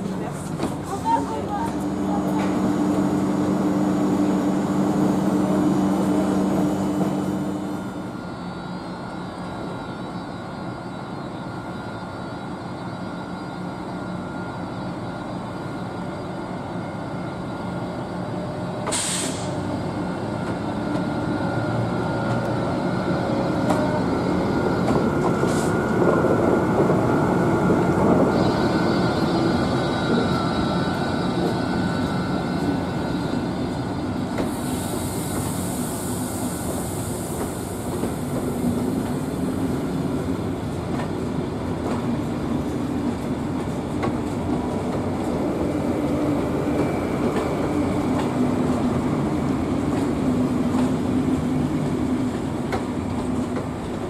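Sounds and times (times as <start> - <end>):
wheels rumbling on rails: 0.0 - 10.1, 13.5 - 54.0
electric locomotive hum: 0.0 - 54.0
high hiss: 34.4 - 39.6.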